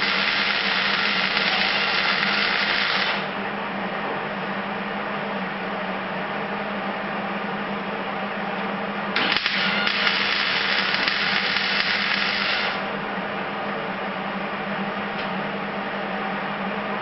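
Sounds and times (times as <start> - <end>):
welder crackling buzz: 0.0 - 3.4, 9.2 - 12.9.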